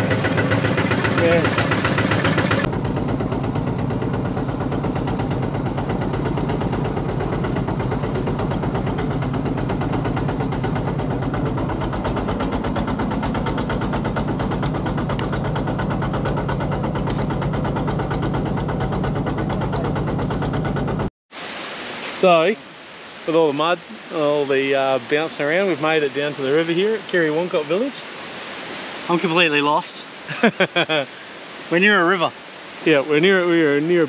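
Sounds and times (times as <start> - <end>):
diesel tractor engine chugging: 0.0 - 21.1.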